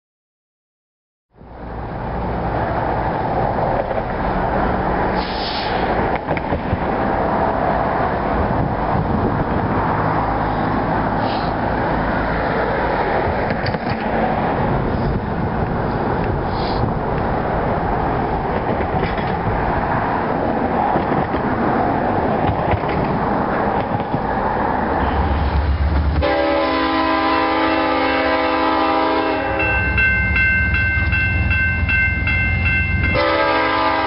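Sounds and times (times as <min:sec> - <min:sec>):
diesel locomotives running: 0:01.4 - 0:34.0
brief hissing: 0:05.2 - 0:06.0, 0:11.2 - 0:11.6, 0:16.5 - 0:16.9.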